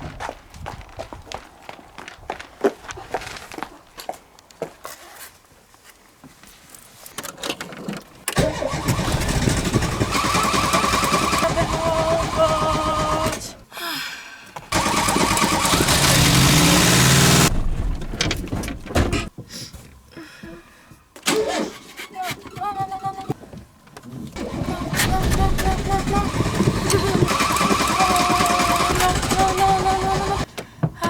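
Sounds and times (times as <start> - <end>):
car engine cranking: 8.3 - 13.6, 14.7 - 19.3, 24.4 - 30.5.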